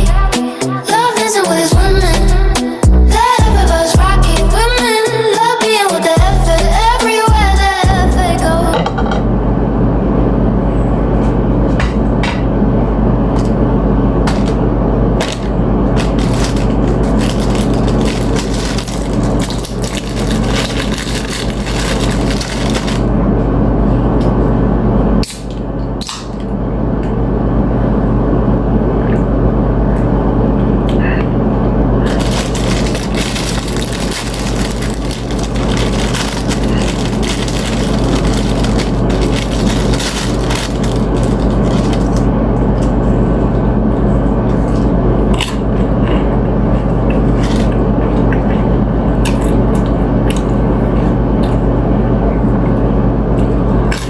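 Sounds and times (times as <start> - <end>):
steady low hum: 1.7 - 4.9, 6.1 - 54.0
chips being crunched and chewed: 15.2 - 23.1, 32.0 - 43.0, 44.6 - 48.4.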